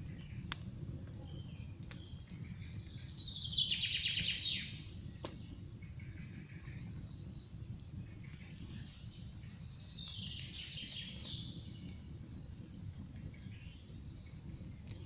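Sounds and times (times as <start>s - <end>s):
campfire crackling: 0.0s - 15.0s
songbird trilling: 3.0s - 4.9s.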